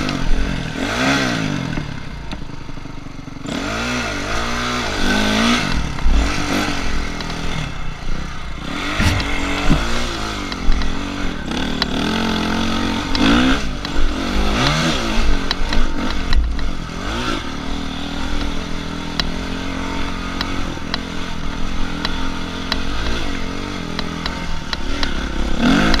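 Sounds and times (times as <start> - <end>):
dirt bike engine revving: 0.0 - 26.0
clicks and clattering knocks: 8.9 - 10.9.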